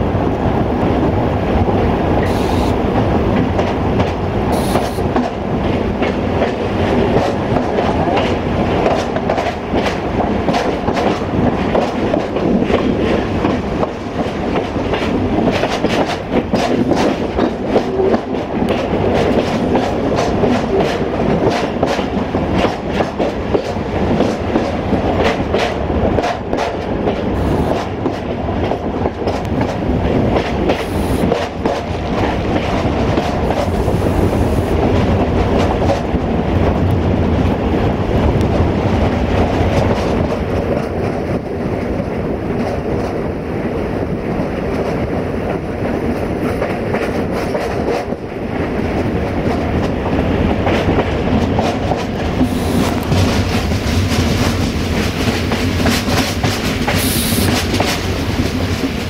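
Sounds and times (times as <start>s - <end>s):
clickety-clack over rail joints: 0.0s - 59.0s
train rumbling on track: 0.0s - 59.0s.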